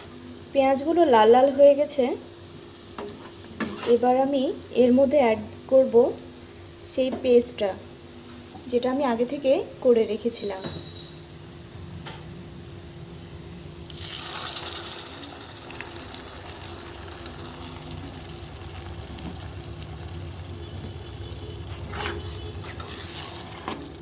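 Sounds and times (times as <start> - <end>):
spice paste sizzling in hot oil: 0.0 - 11.8, 12.7 - 24.0
spatula stirring: 2.9 - 4.2, 20.8 - 24.0.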